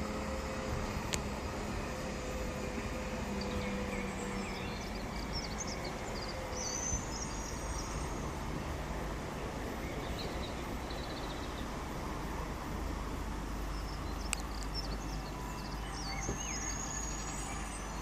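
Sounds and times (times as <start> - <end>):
diesel locomotives rumbling: 0.0 - 18.0
faint bird chirps: 13.7 - 18.0.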